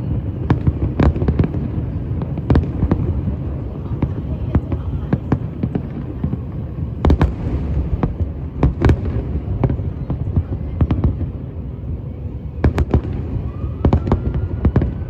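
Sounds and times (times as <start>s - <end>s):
continuous low rumble: 0.0s - 15.0s
fireworks cracks and bangs: 0.0s - 15.0s.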